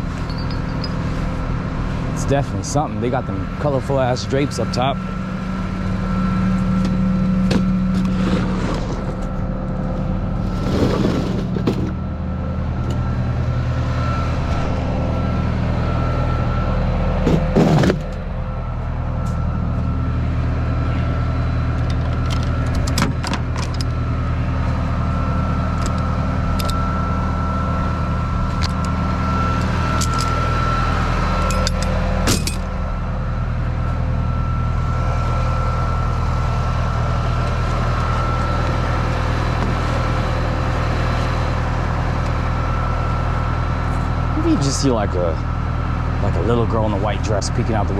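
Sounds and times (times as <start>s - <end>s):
tow truck engine running: 0.0s - 47.9s.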